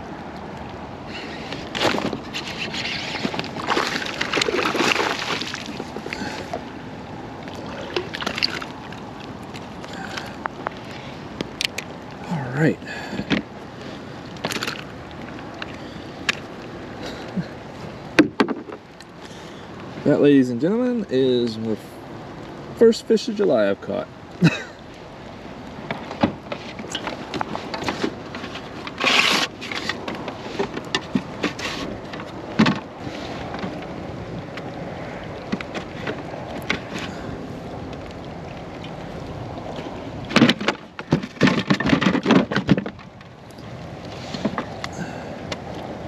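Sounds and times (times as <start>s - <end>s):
water sloshing and splashing: 0.0s - 20.2s, 23.5s - 46.0s
knocks and clatter in kayak: 1.4s - 6.7s, 7.4s - 10.8s, 13.0s - 13.6s, 14.3s - 16.5s, 17.3s - 19.1s, 25.8s - 46.0s.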